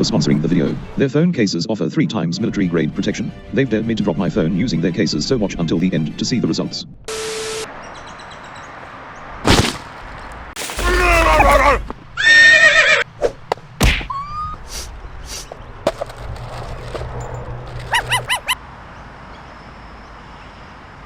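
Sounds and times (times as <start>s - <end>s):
sharp cracks and knocks: 9.5s - 11.8s, 15.9s - 18.2s
horse whinnying: 10.8s - 13.0s.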